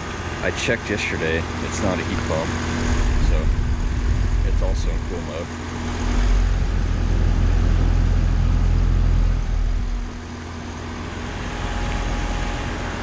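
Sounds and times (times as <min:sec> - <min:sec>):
air conditioner fan and compressor hum: 0:00.0 - 0:13.0
heavy low rumble: 0:01.5 - 0:13.0.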